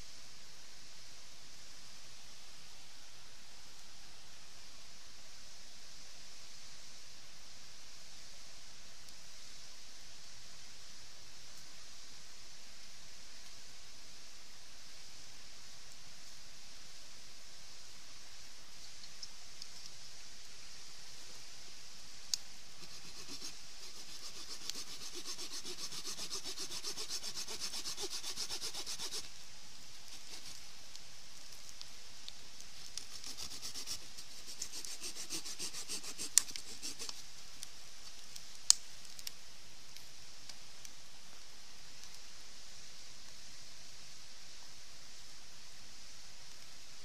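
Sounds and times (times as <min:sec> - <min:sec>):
hand saw cutting wood: 0:22.8 - 0:29.3, 0:30.2 - 0:30.6, 0:33.1 - 0:37.2.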